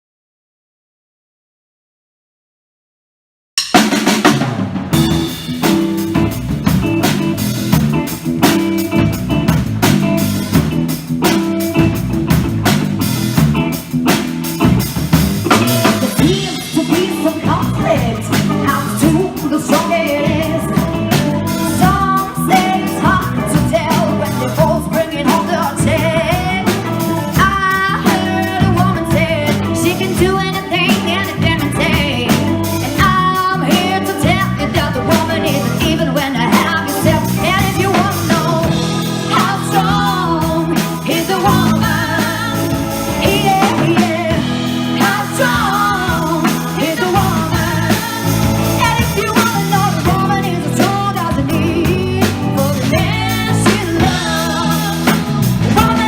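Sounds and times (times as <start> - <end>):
band playing blues-rock: 3.7 - 56.0
bending guitar lead line: 4.3 - 56.0.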